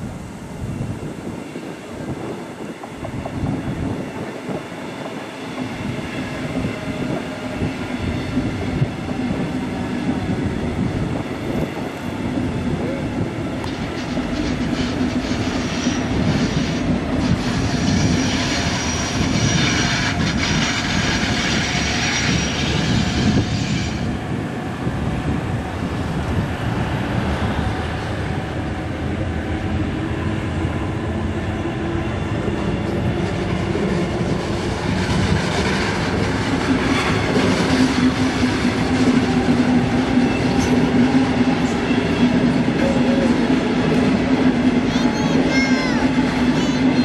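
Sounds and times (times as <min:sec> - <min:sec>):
train wheels rumbling and clattering: 0:00.6 - 0:47.0
high squeal: 0:14.0 - 0:24.1.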